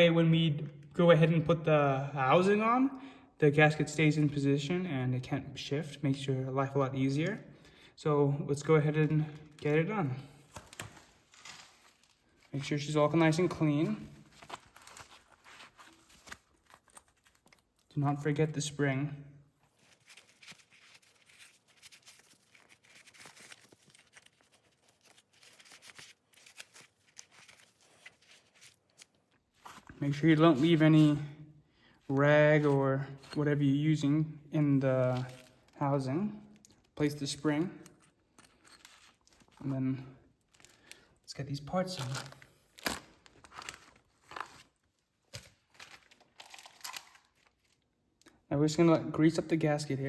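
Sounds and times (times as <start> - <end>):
plastic packaging crinkling: 13.4 - 17.9, 19.6 - 30.0, 41.8 - 47.9.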